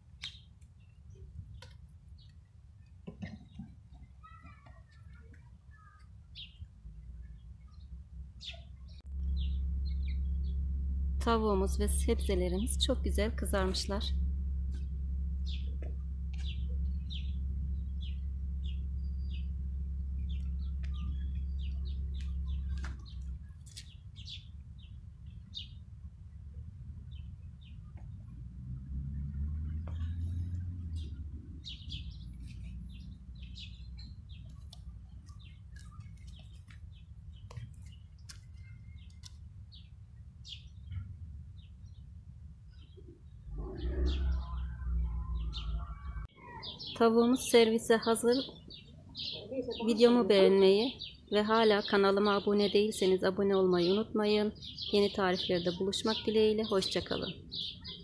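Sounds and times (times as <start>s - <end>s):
small birds chirping: 0.0s - 28.4s, 29.4s - 58.0s
low steady rumble: 6.5s - 46.3s.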